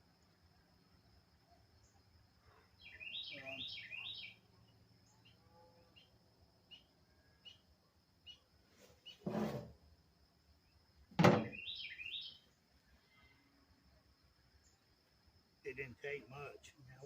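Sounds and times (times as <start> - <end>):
songbird chirping: 0.0 - 17.0
short dull knock: 11.2 - 11.6.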